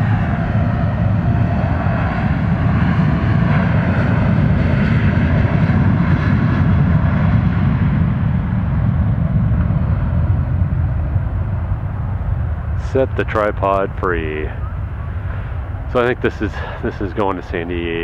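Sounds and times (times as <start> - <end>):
jet engines running loud: 0.0 - 18.0.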